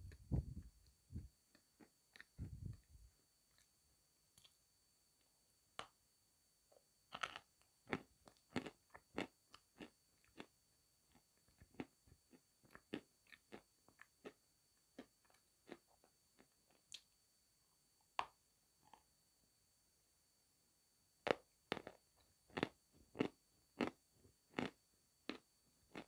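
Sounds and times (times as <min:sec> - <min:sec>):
crunching and chewing: 0:01.5 - 0:02.8, 0:07.1 - 0:17.0, 0:21.2 - 0:26.0.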